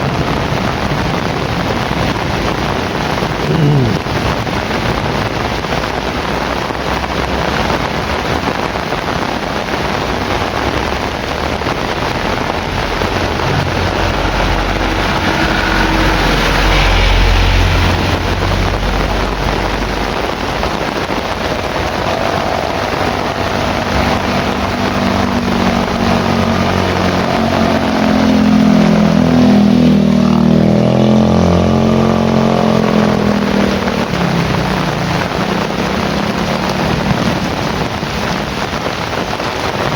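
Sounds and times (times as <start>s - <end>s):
heavy rain: 0.0s - 39.9s
vehicle passing: 10.3s - 38.8s
low rumble: 10.4s - 32.5s.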